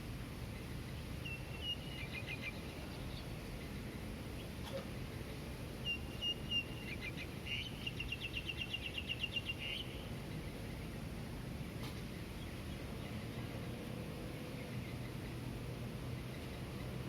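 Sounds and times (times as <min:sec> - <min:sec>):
distant traffic hum: 0:00.0 - 0:17.0
small bird chirping: 0:01.2 - 0:03.4, 0:05.8 - 0:10.0.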